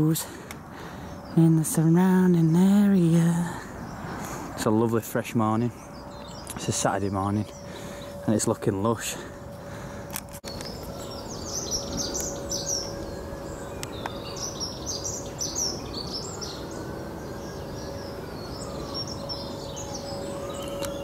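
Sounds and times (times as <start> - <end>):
songbirds chirping and singing: 0.0 - 21.0
steady hum: 5.4 - 21.0.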